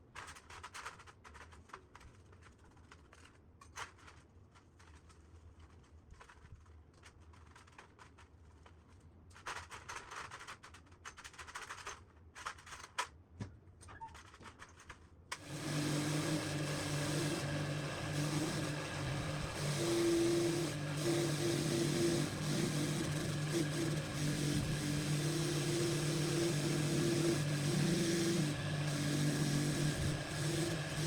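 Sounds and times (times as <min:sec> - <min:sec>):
small electric power tool running: 0:15.4 - 0:31.0.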